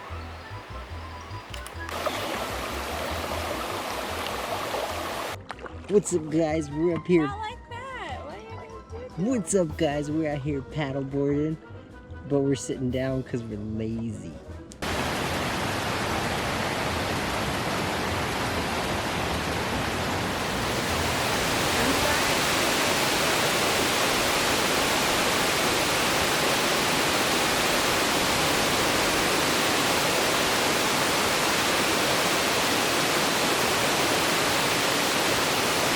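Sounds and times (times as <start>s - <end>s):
waterfall rushing: 1.9s - 5.4s, 14.8s - 35.9s.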